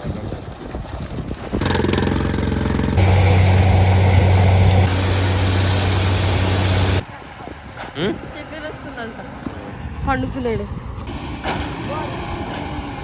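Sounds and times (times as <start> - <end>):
drilling rig engine drone: 1.6 - 7.0.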